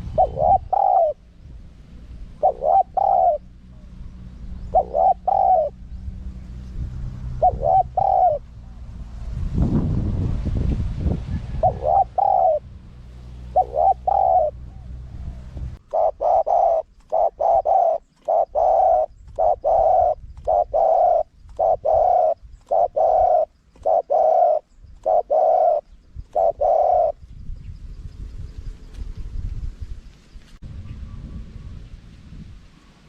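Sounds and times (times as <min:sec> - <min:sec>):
dove cooing: 0:00.0 - 0:01.4, 0:02.0 - 0:06.0, 0:07.3 - 0:08.8, 0:11.4 - 0:12.7, 0:13.4 - 0:27.2
low rumble: 0:00.0 - 0:15.9, 0:27.2 - 0:32.8.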